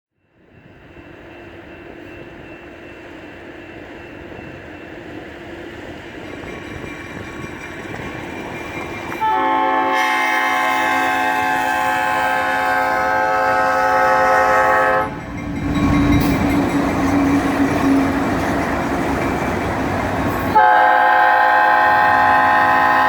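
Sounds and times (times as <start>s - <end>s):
diesel locomotive rumble: 3.8s - 23.0s
locomotive horn chord: 9.2s - 15.1s, 20.6s - 23.0s.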